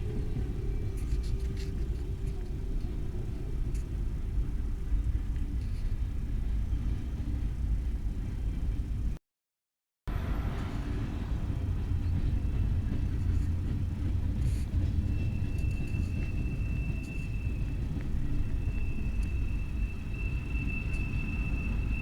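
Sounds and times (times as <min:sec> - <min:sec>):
freight train rumbling past: 0:00.0 - 0:09.2, 0:10.1 - 0:22.0
high-pitched squeal: 0:14.8 - 0:22.0.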